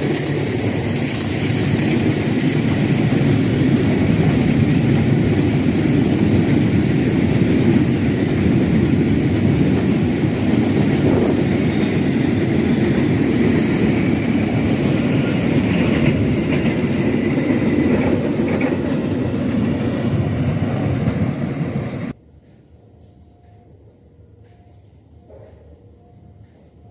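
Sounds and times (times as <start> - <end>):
train clatter: 0.0 - 22.2
train wheels rumbling on rails: 0.0 - 26.9.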